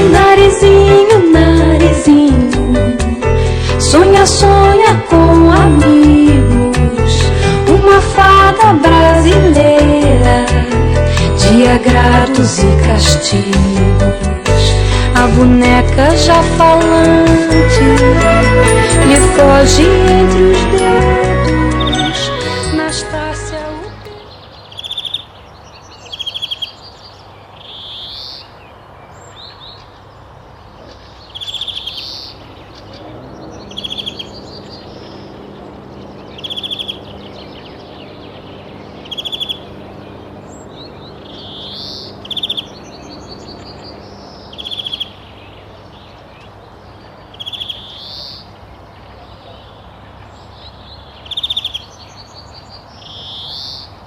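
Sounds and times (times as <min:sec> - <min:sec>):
rising sweeping bird calls: 0:17.4 - 0:22.8, 0:30.8 - 0:46.6
bird trills: 0:30.8 - 0:45.7
faint background hum: 0:32.3 - 0:49.6.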